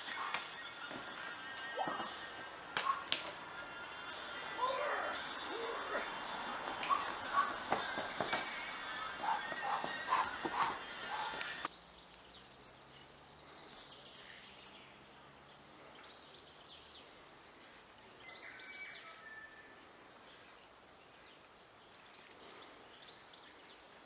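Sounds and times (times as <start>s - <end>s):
faint birdsong chirps and whistles: 11.1s - 24.0s.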